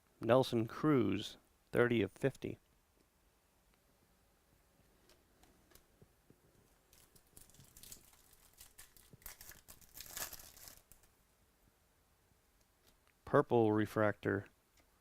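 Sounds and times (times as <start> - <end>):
wrapper crinkling and tearing: 6.9 - 11.1.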